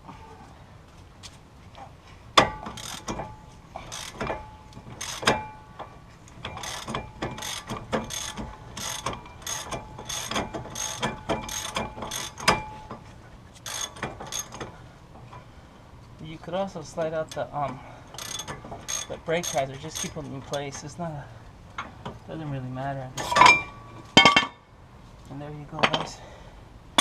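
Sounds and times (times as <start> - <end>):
ratchet wrench clicking: 2.6 - 5.5, 6.4 - 12.6, 13.6 - 14.7, 18.1 - 20.6.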